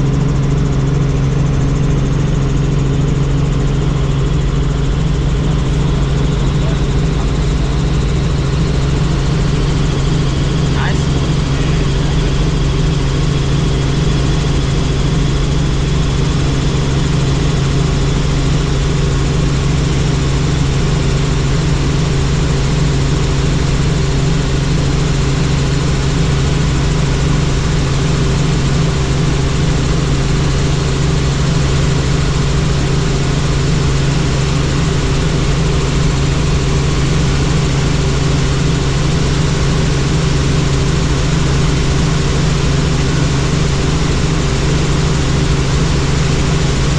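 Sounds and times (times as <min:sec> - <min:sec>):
helicopter rotor and engine drone: 0:00.0 - 0:46.9.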